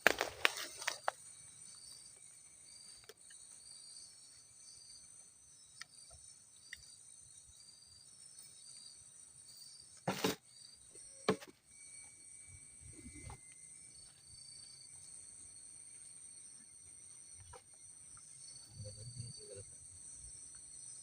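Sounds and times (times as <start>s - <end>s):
crickets chirring: 0.0s - 21.0s.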